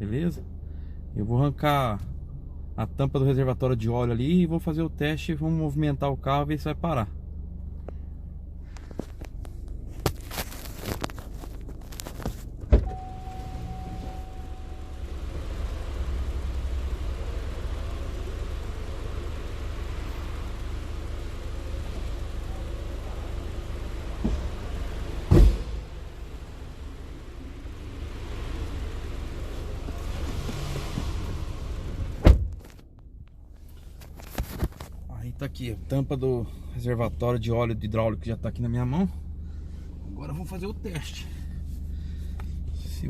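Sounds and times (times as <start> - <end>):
car engine idling: 0.0 - 43.0
sharp knocks: 25.3 - 25.9.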